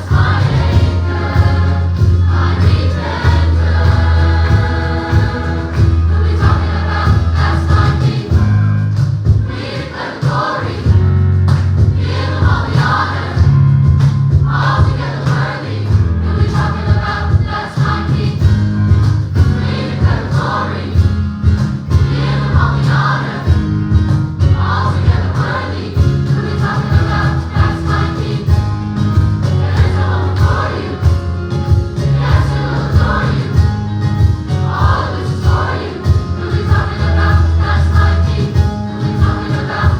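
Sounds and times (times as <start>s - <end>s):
choir singing gospel: 0.0s - 39.9s
live band playing: 15.9s - 39.9s.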